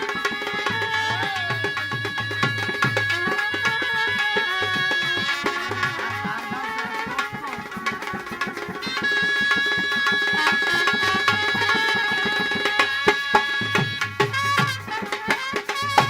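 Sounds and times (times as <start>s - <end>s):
hand drums: 0.0s - 16.0s.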